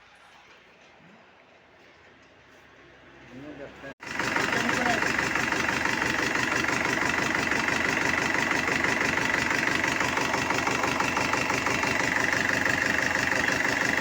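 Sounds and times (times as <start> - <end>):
diesel engine idling: 4.0 - 14.0.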